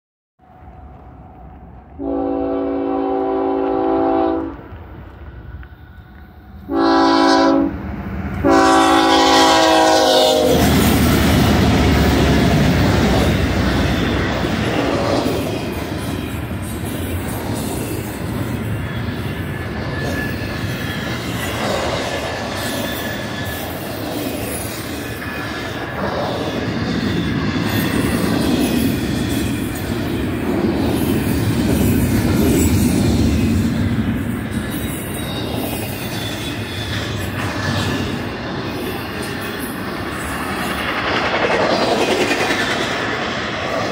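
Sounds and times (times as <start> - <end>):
diesel locomotives rumbling: 0.4 - 43.9
train horn blasts: 2.0 - 4.7, 6.6 - 7.8, 8.4 - 10.8.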